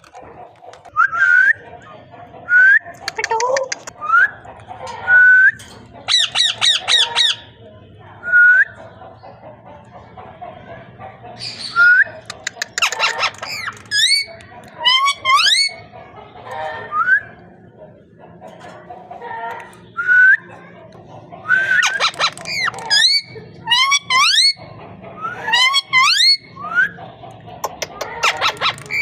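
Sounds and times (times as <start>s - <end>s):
parrot chatter: 5.8s - 7.6s, 9.0s - 16.9s, 17.9s - 29.0s.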